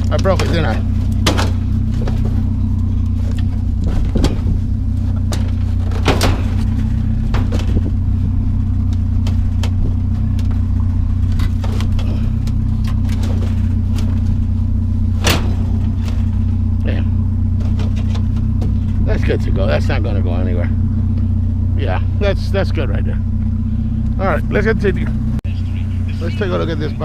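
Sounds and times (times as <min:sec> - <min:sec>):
metal knocks and clanks: 0:00.0 - 0:19.4
vehicle engine idling: 0:00.0 - 0:27.0.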